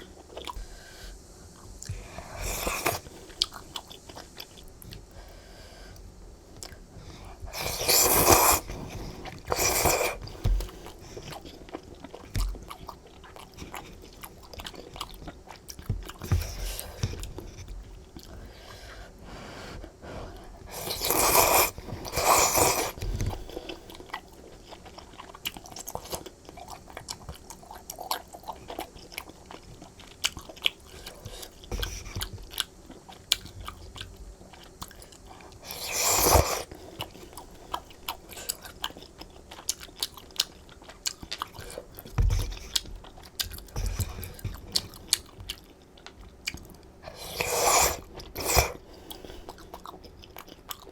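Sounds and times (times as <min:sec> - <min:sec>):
wet chewing: 0:06.6 - 0:18.8, 0:19.8 - 0:50.9
loud noodle slurps: 0:07.5 - 0:10.2, 0:20.7 - 0:23.1, 0:35.6 - 0:36.7, 0:47.1 - 0:48.8.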